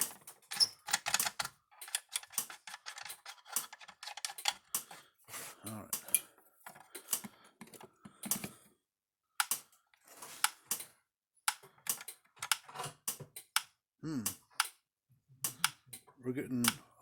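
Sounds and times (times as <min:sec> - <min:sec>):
small clicks and taps: 0:00.0 - 0:05.0, 0:05.9 - 0:08.6, 0:09.4 - 0:09.8, 0:11.5 - 0:14.8.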